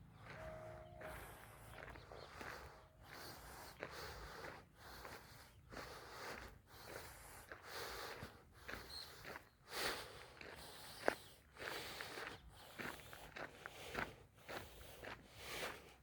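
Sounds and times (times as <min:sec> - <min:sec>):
footsteps crunching on a path: 0:00.0 - 0:16.0
faint bird chirp: 0:08.8 - 0:09.6.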